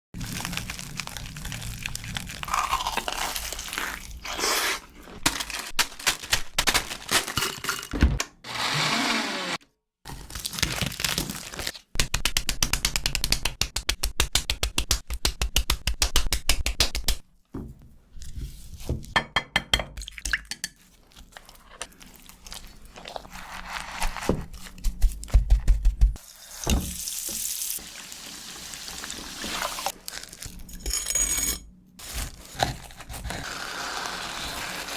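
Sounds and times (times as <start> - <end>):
crunching and crinkling of snacks: 0.2 - 7.9, 10.1 - 12.0, 29.9 - 30.8.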